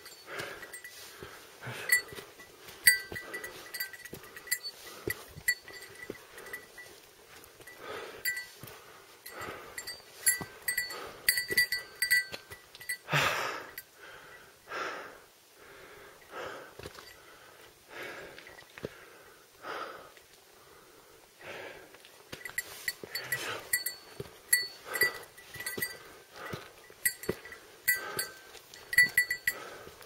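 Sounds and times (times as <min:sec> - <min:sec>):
small metallic clinks: 0:00.0 - 0:01.2, 0:01.8 - 0:13.9, 0:22.3 - 0:30.0
heavy breathing: 0:00.0 - 0:30.0.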